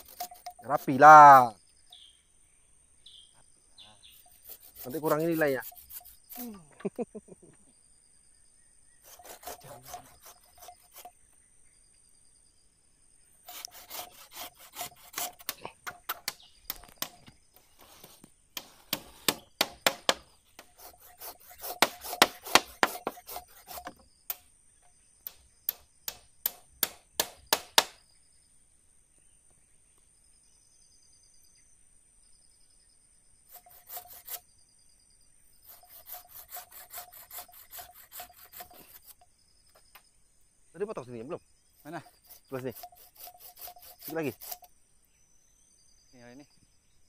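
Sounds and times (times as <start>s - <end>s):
hand saw cutting wood: 0.0s - 1.5s, 4.0s - 6.5s, 9.0s - 11.2s, 13.4s - 24.0s, 33.5s - 34.4s, 35.6s - 39.2s, 41.9s - 44.7s.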